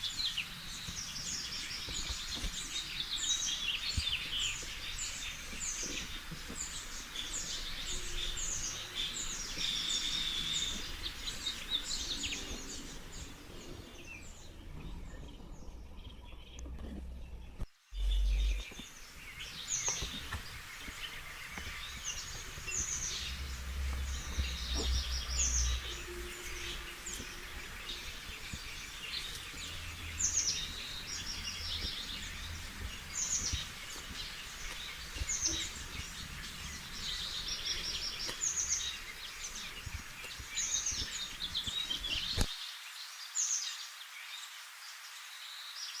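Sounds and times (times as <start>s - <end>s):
small birds chirping: 0.0s - 46.0s
low background rumble: 6.5s - 18.9s, 20.5s - 41.2s.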